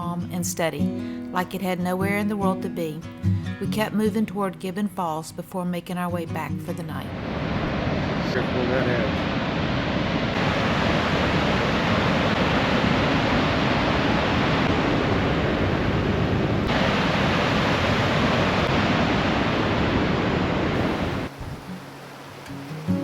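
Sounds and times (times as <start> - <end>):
waterfall roaring: 7.1 - 23.0.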